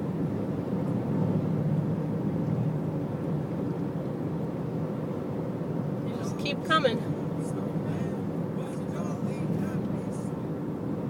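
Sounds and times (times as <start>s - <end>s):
motorcycle engines rumbling: 6.0s - 10.4s.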